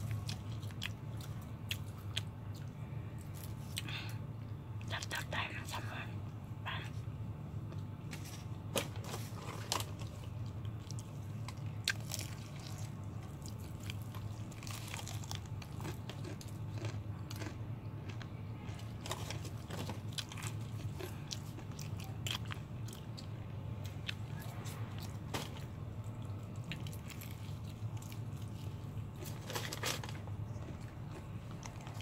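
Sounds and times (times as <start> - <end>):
chewing food: 0.0 - 4.2, 9.0 - 32.0
steady low hum: 0.0 - 32.0
crisp crunches of fried chicken: 8.8 - 32.0.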